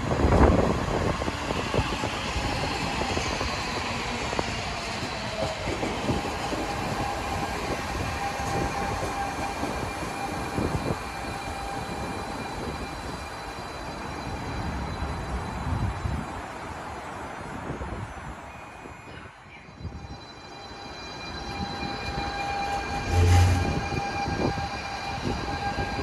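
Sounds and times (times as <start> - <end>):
train rumbling past: 19.7 - 26.0.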